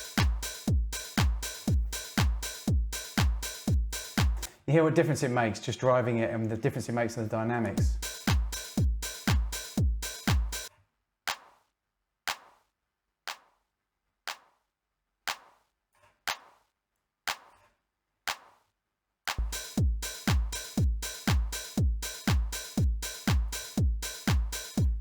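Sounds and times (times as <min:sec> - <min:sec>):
deep kick drum: 0:00.0 - 0:04.5, 0:07.8 - 0:10.7, 0:19.4 - 0:25.0
sharp drum hit: 0:00.0 - 0:04.5, 0:07.8 - 0:10.7, 0:19.4 - 0:25.0.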